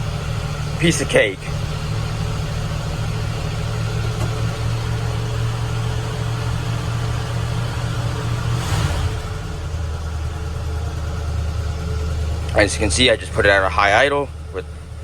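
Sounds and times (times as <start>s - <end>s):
engine whoosh: 0.0s - 10.6s
truck engine fast idle: 0.0s - 15.0s.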